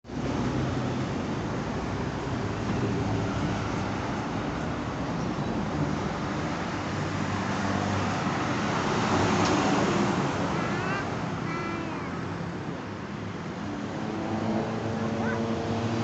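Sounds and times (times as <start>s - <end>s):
road traffic: 0.0s - 16.0s
heavy truck passing: 0.1s - 16.0s.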